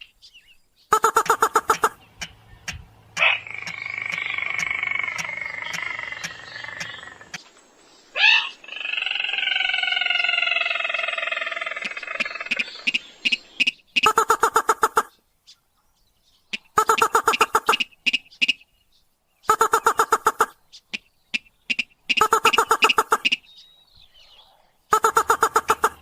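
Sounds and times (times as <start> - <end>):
rattling bird trills: 1.0 - 7.3
nasal bird calls sliding downward: 3.2 - 7.4.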